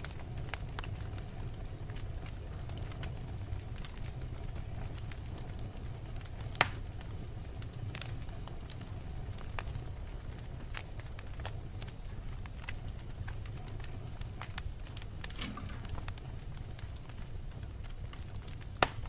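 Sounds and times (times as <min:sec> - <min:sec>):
logs burning in a fireplace: 0:00.0 - 0:19.0
sharp pop of burning log: 0:15.2 - 0:16.2.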